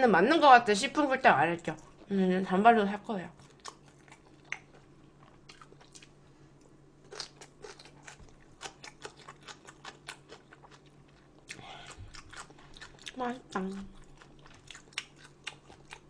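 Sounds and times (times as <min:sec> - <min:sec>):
person chewing food: 0:03.4 - 0:16.0.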